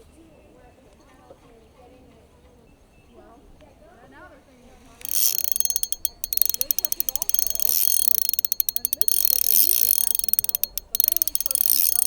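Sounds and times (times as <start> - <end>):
fishing reel rapid clicking: 5.0 - 12.0.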